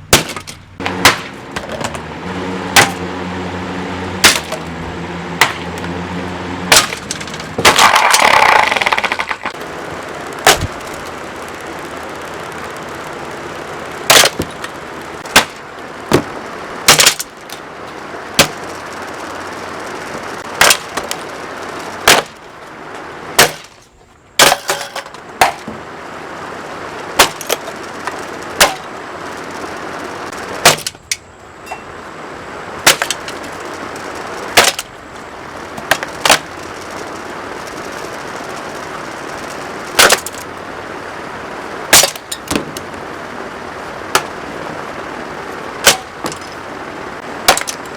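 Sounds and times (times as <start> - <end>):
fan being smashed: 0.0 - 13.0, 14.0 - 19.1, 19.7 - 22.5, 23.3 - 25.9, 27.1 - 29.7, 30.3 - 31.3, 32.8 - 35.0, 35.7 - 37.0, 39.3 - 40.5, 41.9 - 42.8, 44.0 - 44.7, 45.6 - 46.7, 47.3 - 47.9
steady rushing noise: 0.0 - 47.9.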